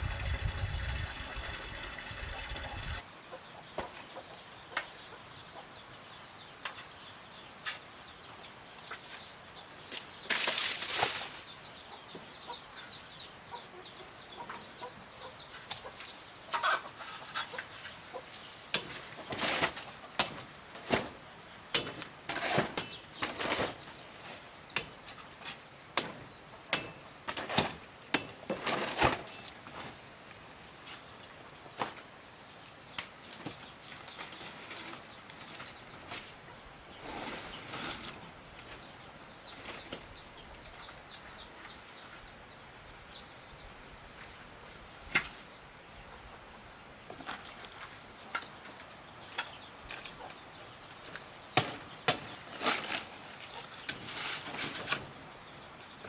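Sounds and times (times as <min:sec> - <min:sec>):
knocks and scraping strokes: 0:00.0 - 0:03.0
small bird chirping: 0:32.4 - 0:56.0.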